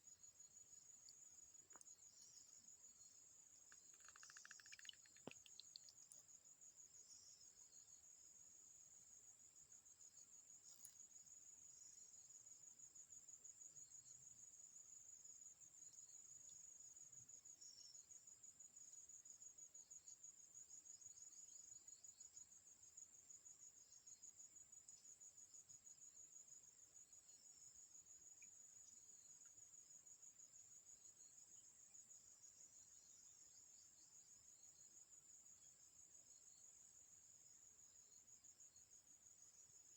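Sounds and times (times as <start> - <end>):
insect chirring: 0.2 - 6.4.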